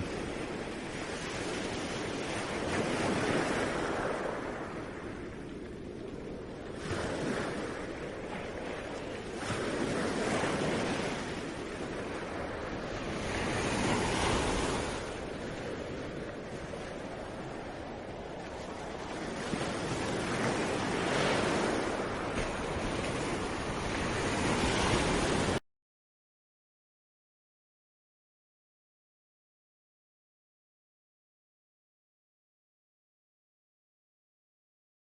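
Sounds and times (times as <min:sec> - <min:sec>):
sea waves washing in: 0:00.0 - 0:25.6.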